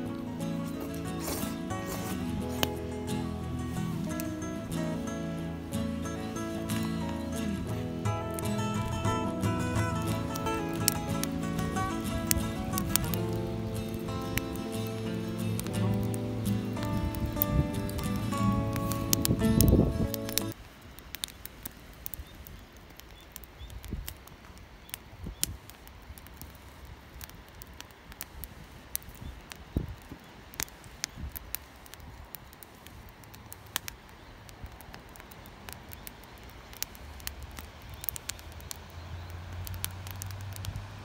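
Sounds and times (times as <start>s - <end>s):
low outdoor rumble: 0.0s - 22.1s, 31.3s - 41.0s
sharp clicks and crackles: 5.7s - 40.9s.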